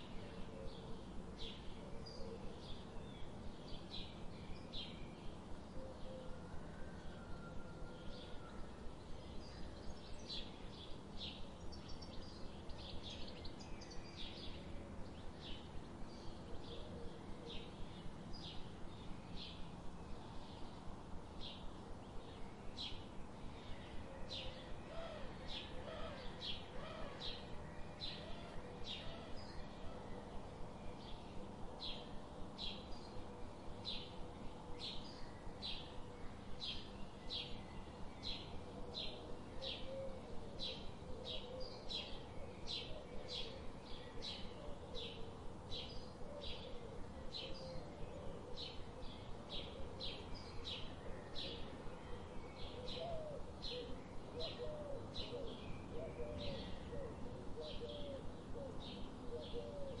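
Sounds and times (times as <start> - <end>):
cooing bird calls: 0.0 - 3.0, 5.8 - 8.5, 23.6 - 30.7, 38.2 - 60.0.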